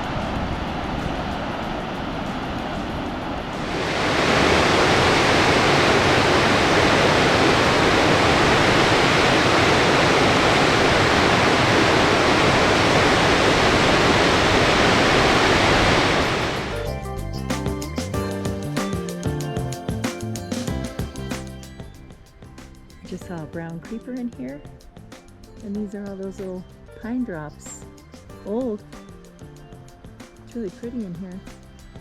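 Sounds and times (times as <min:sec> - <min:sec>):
loud steady rushing noise: 0:00.0 - 0:16.9
music: 0:00.0 - 0:32.0.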